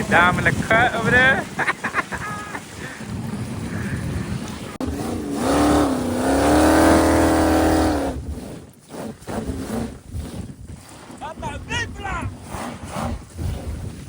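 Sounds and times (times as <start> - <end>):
engine revving: 4.8 - 8.4
wind rushing: 10.2 - 14.0.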